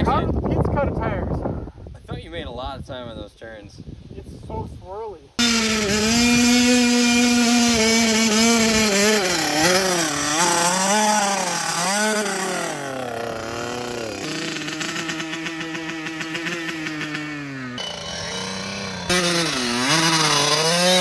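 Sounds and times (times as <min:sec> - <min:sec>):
mini bike engine revving: 0:05.4 - 0:21.0.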